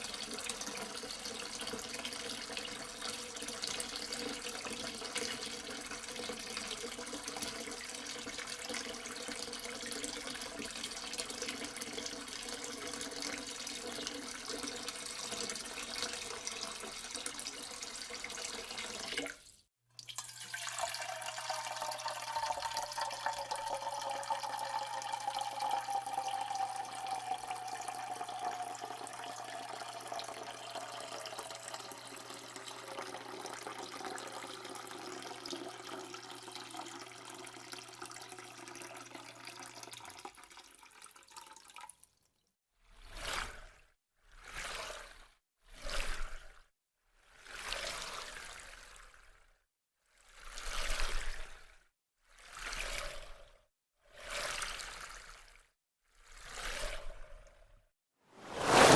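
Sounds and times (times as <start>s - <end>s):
tap water running into sink: 0.0s - 42.0s
falling tone: 58.4s - 58.9s.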